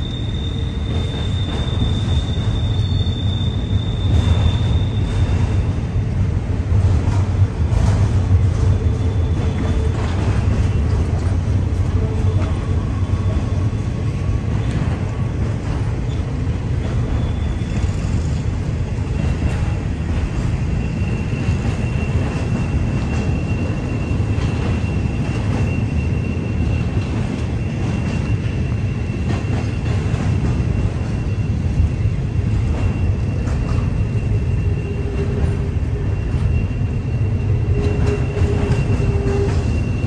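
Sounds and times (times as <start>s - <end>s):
high-pitched wheel squeal: 0.0s - 5.6s, 17.0s - 18.4s, 32.8s - 40.0s
train rumbling past: 0.0s - 40.0s.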